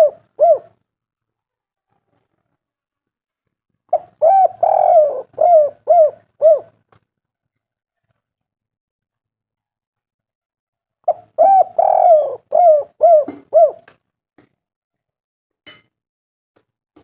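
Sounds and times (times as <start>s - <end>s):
dove cooing: 0.0s - 0.8s, 3.9s - 6.8s, 11.0s - 14.0s.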